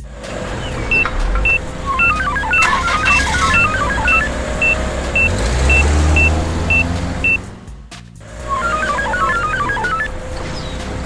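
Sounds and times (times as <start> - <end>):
low engine rumble: 0.0 - 11.0
plinking notes: 1.0 - 7.4, 8.4 - 10.1
short high beeps: 1.0 - 7.4, 8.5 - 10.1.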